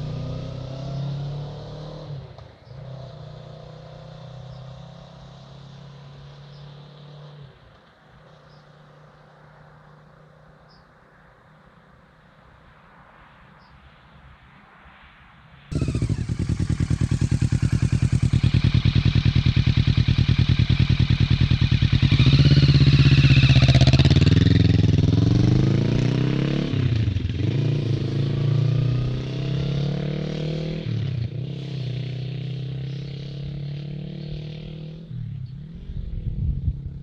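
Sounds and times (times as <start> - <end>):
motorcycle engine revving: 0.0 - 7.4, 15.7 - 37.0.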